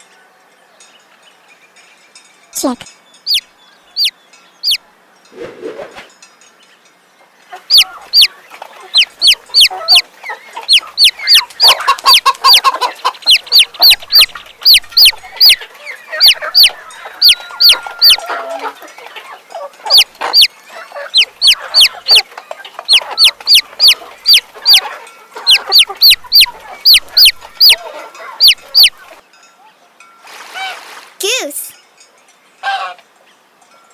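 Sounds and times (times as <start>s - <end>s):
chicks peeping: 4.0s - 4.8s, 7.5s - 29.2s.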